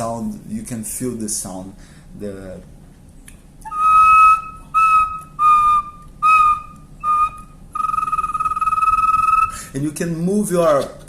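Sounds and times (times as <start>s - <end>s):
wooden bird-call whistle: 3.6s - 9.7s.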